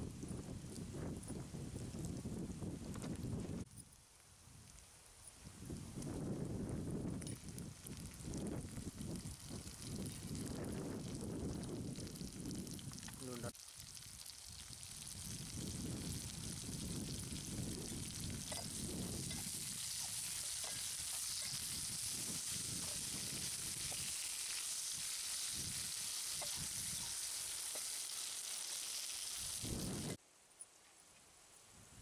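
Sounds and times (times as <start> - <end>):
vegetables sizzling in oil: 7.7 - 30.2.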